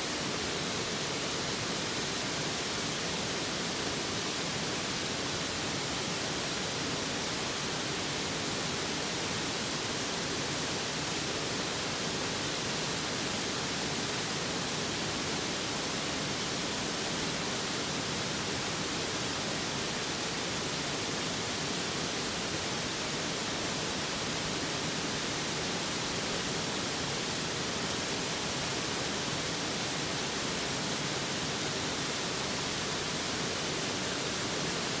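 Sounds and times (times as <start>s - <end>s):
stream rushing over rocks: 0.0s - 35.0s.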